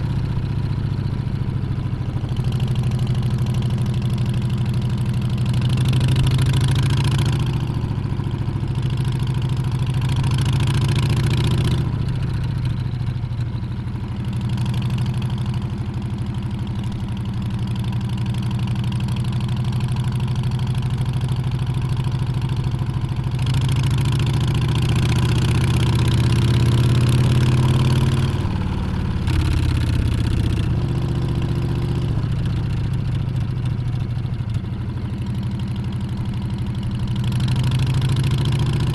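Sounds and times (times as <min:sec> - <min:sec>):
motorcycle engine running: 0:00.0 - 0:38.9
wind: 0:00.0 - 0:38.9
road noise: 0:22.3 - 0:38.9.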